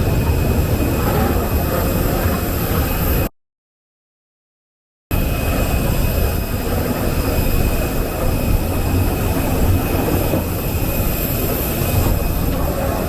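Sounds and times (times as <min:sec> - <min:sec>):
airliner cabin low rumble: 0:00.0 - 0:03.3, 0:05.1 - 0:13.0.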